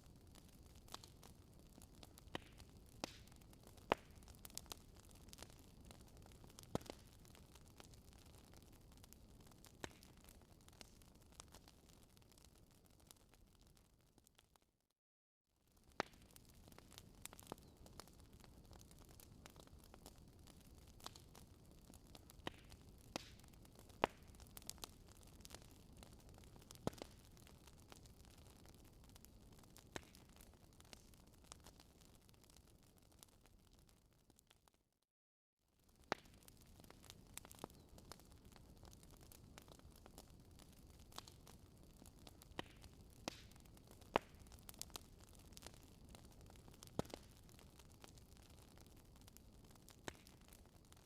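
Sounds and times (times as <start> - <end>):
wood fire crackling: 0.0 - 14.6, 15.7 - 34.8, 35.8 - 51.0.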